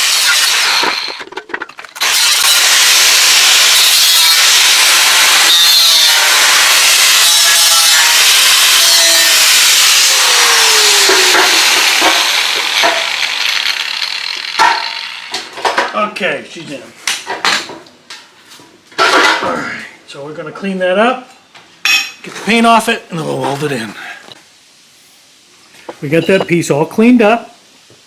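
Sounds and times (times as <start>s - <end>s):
angle grinder cutting steel: 0.0s - 15.6s.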